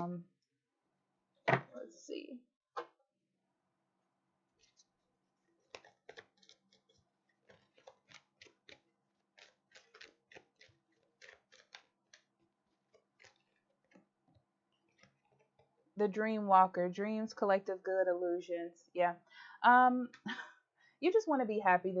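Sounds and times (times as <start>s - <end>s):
cards being shuffled: 5.6s - 14.0s.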